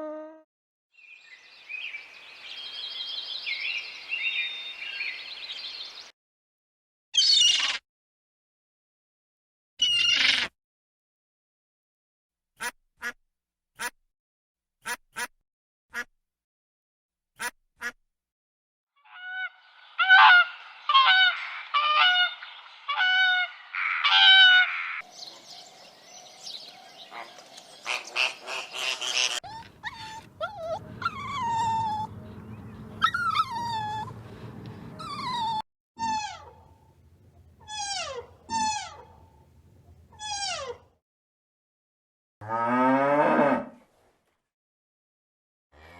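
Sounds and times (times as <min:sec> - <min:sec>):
geese honking: 0:19.1 - 0:25.0, 0:27.8 - 0:35.0.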